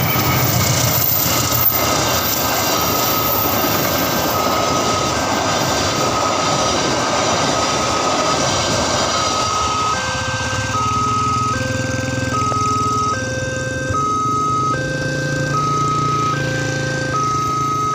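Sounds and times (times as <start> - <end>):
train passing: 0.0 - 17.9
two-tone crossing alarm: 0.0 - 17.9.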